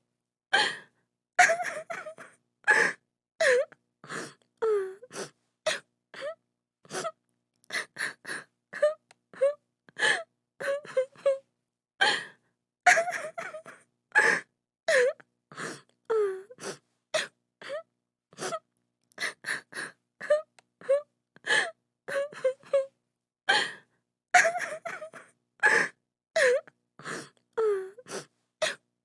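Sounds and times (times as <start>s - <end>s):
woman sobbing: 1.4s - 3.7s, 12.9s - 15.2s, 20.2s - 22.9s, 24.4s - 26.6s.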